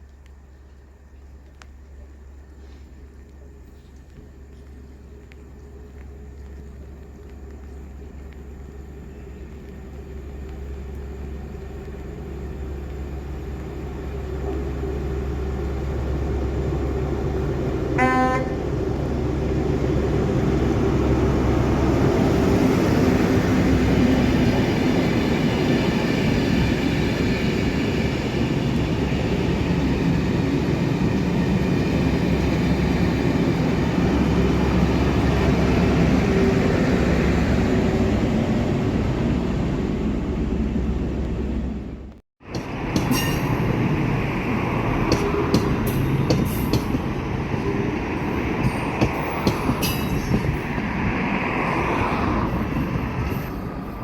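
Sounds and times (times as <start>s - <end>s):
train passing: 0.0s - 54.0s
train horn blast: 18.0s - 18.7s.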